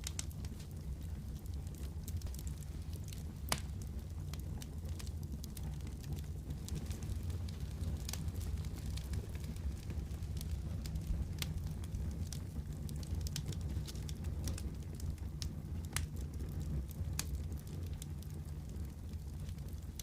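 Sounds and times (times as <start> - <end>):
wood fire crackling: 0.0 - 20.0
sharp pops of fire: 1.4 - 15.1.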